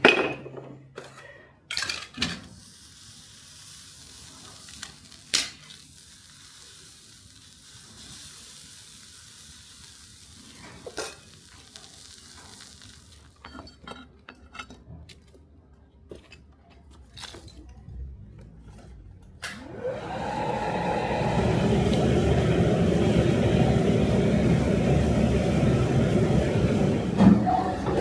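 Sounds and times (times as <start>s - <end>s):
steady hiss: 2.6s - 13.4s.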